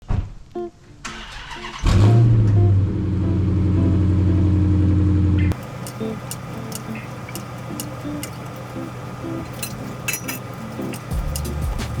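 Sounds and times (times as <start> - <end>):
car starter cranking: 1.0 - 2.6, 5.5 - 12.0
car engine revving and idling: 1.4 - 12.0.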